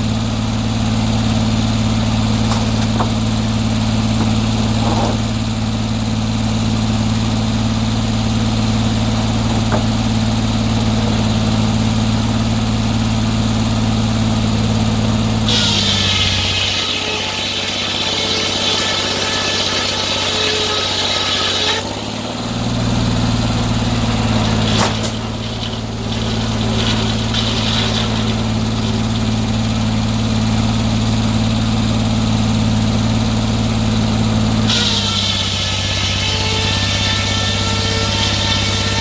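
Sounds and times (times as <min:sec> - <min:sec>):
sawmill engine running: 0:00.0 - 0:39.0
high hissing saw cutting: 0:14.7 - 0:30.8, 0:34.6 - 0:39.0.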